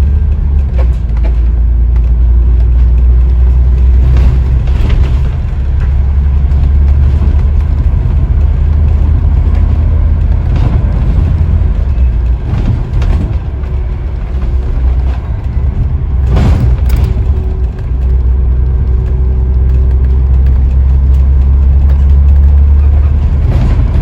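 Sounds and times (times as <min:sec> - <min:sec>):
body rattles and knocks: 0:00.0 - 0:24.0
bus engine and road rumble: 0:00.0 - 0:24.0
loud thump: 0:10.4 - 0:18.3.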